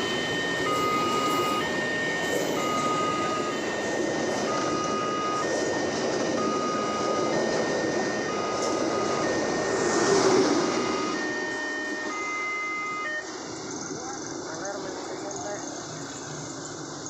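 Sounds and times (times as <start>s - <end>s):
level crossing two-tone warning signal: 0.0s - 13.4s
passing train rumble: 0.0s - 17.0s.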